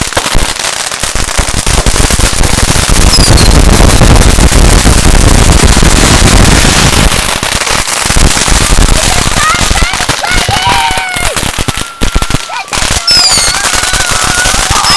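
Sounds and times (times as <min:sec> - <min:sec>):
firecrackers crackling and popping: 0:00.0 - 0:14.9
falling whistle: 0:03.1 - 0:03.6, 0:13.0 - 0:14.9.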